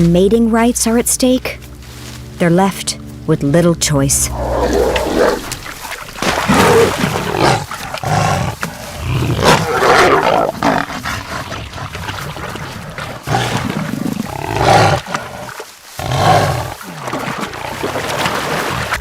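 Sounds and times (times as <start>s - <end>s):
jaguars roaring and snarling: 4.2s - 19.0s.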